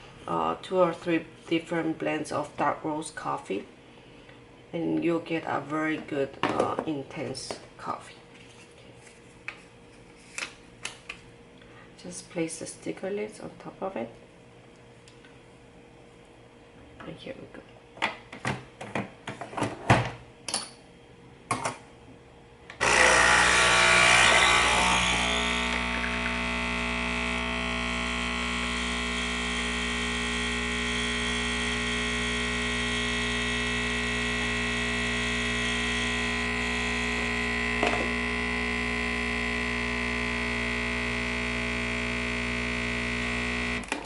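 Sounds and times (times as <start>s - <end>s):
coffee machine pump buzzing: 22.7s - 44.0s.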